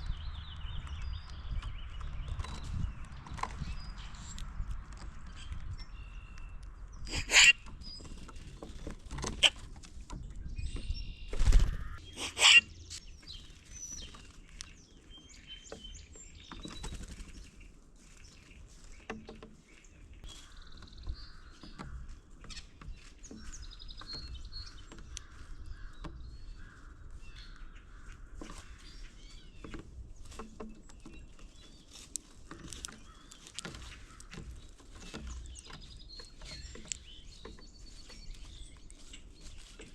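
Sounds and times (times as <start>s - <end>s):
birds chirping and chattering: 0.0s - 39.9s
loud sharp bird calls: 7.0s - 8.0s, 11.1s - 13.1s.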